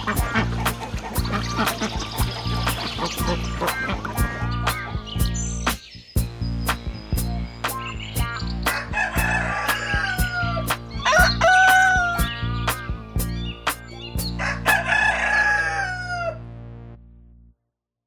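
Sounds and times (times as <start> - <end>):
background music with beat: 0.0 - 15.1
rooster crowing: 8.8 - 12.3, 14.4 - 16.4.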